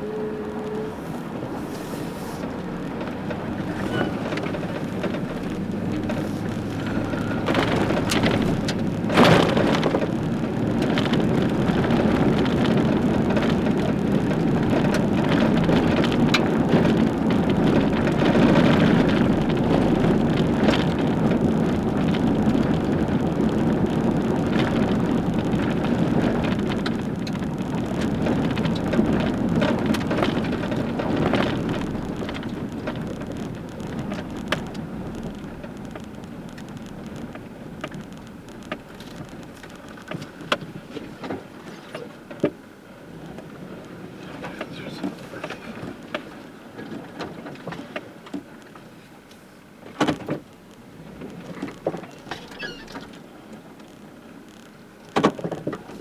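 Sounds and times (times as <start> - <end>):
truck engine running: 0.0 - 47.2
knocks and rattles: 2.5 - 23.1.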